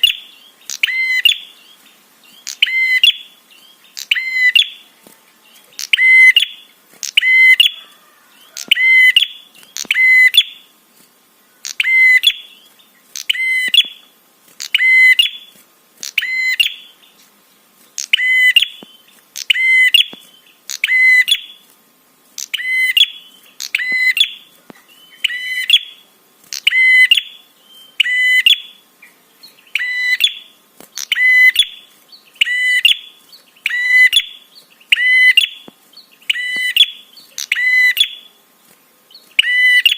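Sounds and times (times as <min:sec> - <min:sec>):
bird calling sharp high notes: 0:05.8 - 0:07.9, 0:39.4 - 0:39.9.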